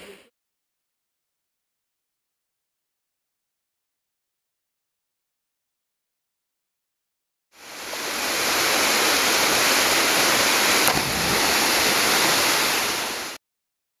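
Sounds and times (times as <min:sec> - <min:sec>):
waterfall rushing: 0:07.6 - 0:13.4.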